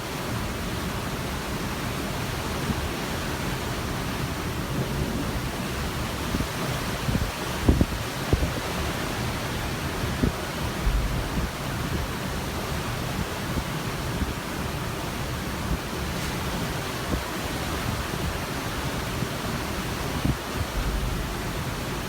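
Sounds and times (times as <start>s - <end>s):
ocean water rushing: 0.0s - 22.0s
wind buffeting microphone: 3.8s - 14.5s, 15.6s - 22.0s.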